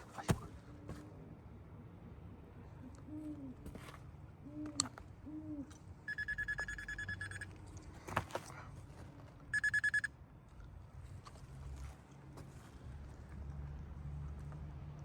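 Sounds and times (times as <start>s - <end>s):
low hoots: 2.6s - 3.6s, 4.3s - 7.4s.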